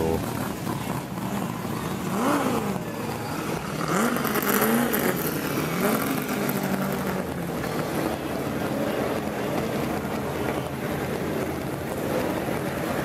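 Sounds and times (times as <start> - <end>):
racing car engine revving: 0.0 - 8.1.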